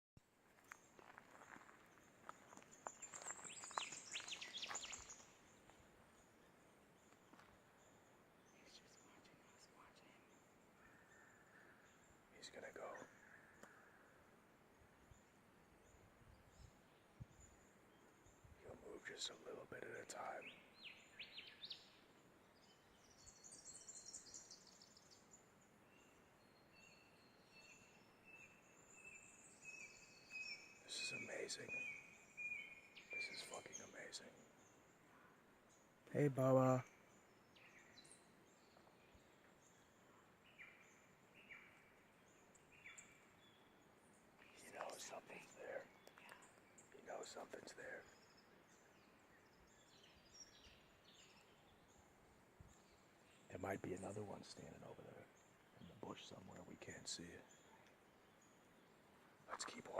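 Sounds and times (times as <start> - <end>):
faint birds chirping: 0.2 - 59.9
quiet bush ambience: 0.2 - 59.9
high bird twittering: 2.5 - 5.4, 28.8 - 34.4, 44.4 - 48.8, 59.5 - 59.9.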